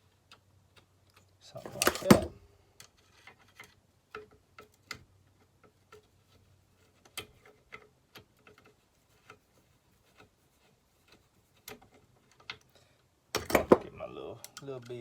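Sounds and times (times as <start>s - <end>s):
small metal parts clicking: 0.2s - 9.4s, 14.4s - 15.0s.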